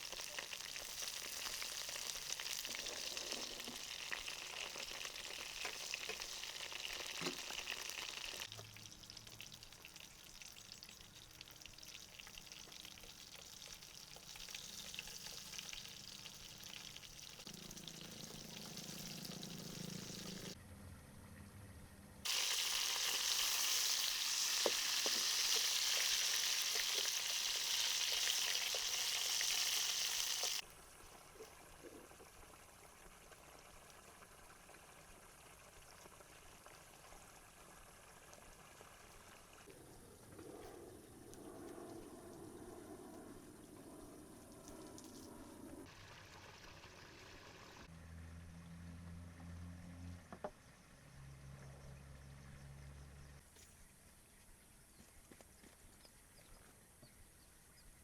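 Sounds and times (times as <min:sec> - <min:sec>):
food sizzling in hot oil: 0:00.0 - 0:20.6, 0:22.3 - 0:30.6, 0:45.9 - 0:47.9.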